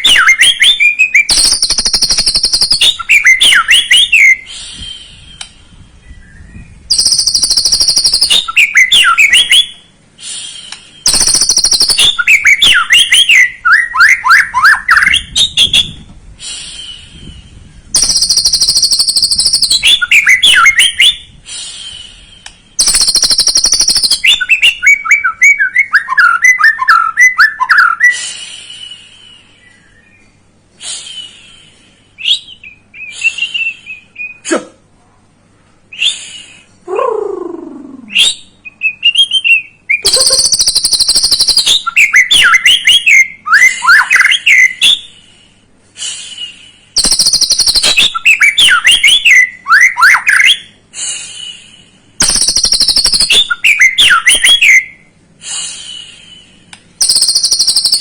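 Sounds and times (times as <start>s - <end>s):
bird singing whistled phrases: 0.0s - 9.8s, 10.5s - 16.0s, 16.6s - 21.3s, 21.9s - 28.2s, 28.8s - 30.4s, 32.2s - 34.5s, 38.0s - 45.1s, 47.0s - 50.8s, 52.2s - 55.1s, 57.0s - 58.0s.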